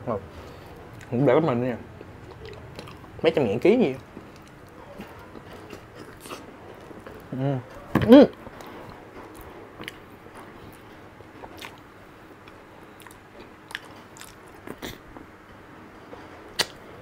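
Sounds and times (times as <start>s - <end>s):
person chewing wetly: 2.0s - 3.2s, 3.9s - 7.3s, 8.6s - 10.8s, 11.4s - 15.2s
lip smacks: 12.5s - 15.0s, 16.5s - 16.8s.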